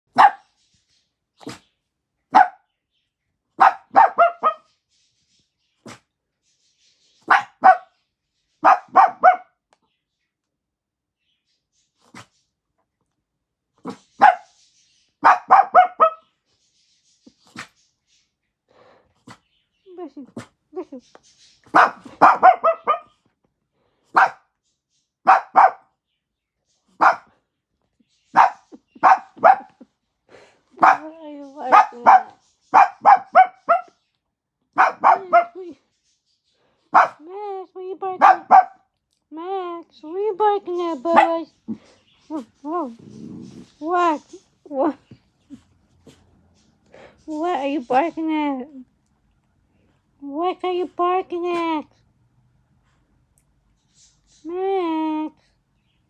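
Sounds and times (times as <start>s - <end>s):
dog barking: 0.1s - 0.5s, 2.3s - 2.7s, 3.6s - 4.7s, 7.3s - 7.9s, 8.6s - 9.6s, 13.9s - 14.5s, 15.2s - 16.2s, 21.7s - 23.2s, 24.1s - 24.5s, 25.2s - 25.9s, 27.0s - 27.4s, 28.3s - 29.8s, 30.8s - 34.0s, 34.8s - 35.7s, 36.9s - 37.3s, 38.2s - 38.9s, 41.1s - 41.4s.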